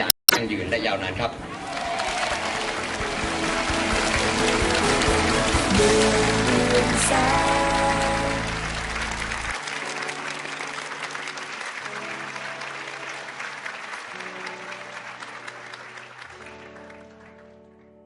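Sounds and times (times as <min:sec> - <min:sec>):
crowd applauding: 0:01.4 - 0:18.0
music with held chords and bass: 0:02.7 - 0:09.6.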